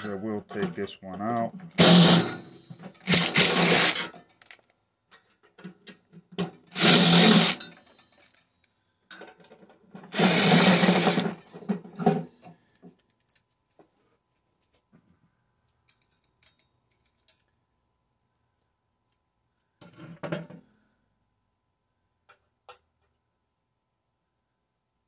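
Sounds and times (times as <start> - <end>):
power drill running: 1.7 - 4.1, 6.7 - 7.7, 10.1 - 11.4.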